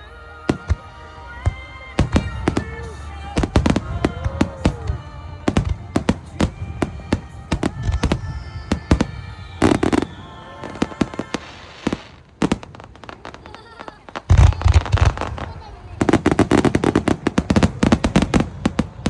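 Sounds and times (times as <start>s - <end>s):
fireworks bangs and crackles: 0.0s - 19.0s
high descending whistle: 5.9s - 12.4s.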